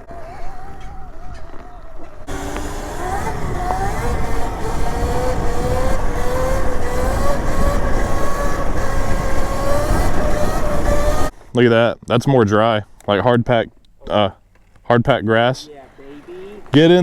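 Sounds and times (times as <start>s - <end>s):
electric motor whining: 0.0s - 11.3s.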